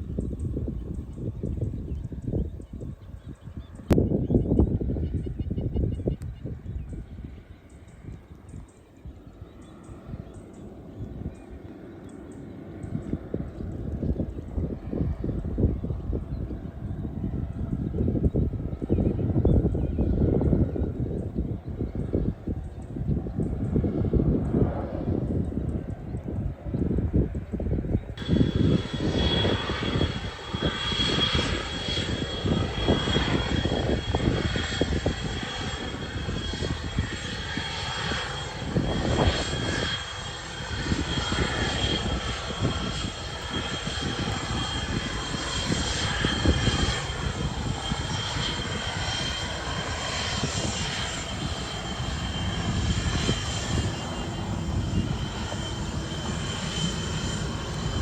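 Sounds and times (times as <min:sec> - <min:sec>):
aircraft engine whining: 0:00.0 - 0:58.0.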